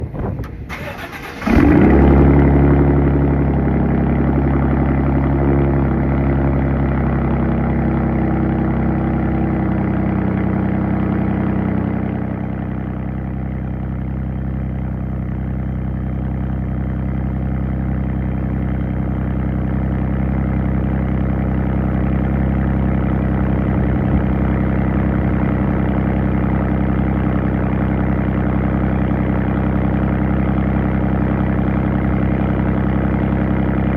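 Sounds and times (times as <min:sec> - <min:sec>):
engine starting and idling: 0:00.2 - 0:03.4.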